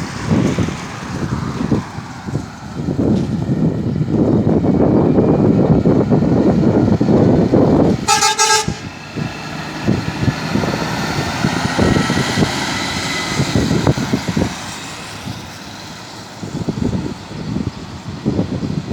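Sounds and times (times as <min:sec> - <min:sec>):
heavy truck passing: 0:00.0 - 0:18.9
truck horn blast: 0:08.0 - 0:09.0.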